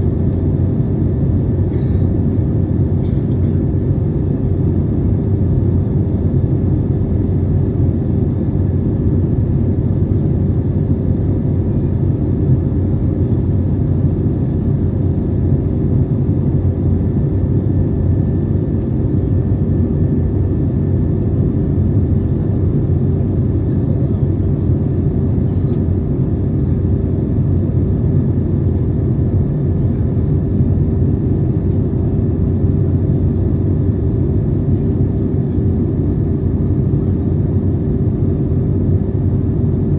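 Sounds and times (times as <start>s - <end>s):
airliner cabin engine rumble: 0.0s - 39.9s
faint steady hum: 0.0s - 39.9s.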